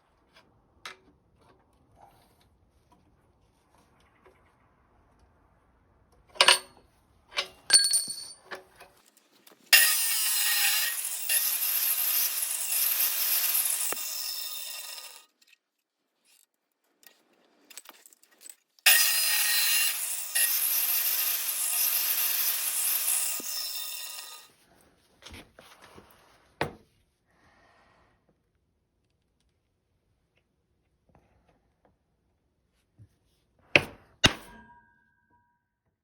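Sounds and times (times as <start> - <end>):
sharp metallic clinks: 7.4 - 8.5
saw cutting with a rasp: 9.7 - 15.4, 18.9 - 24.5.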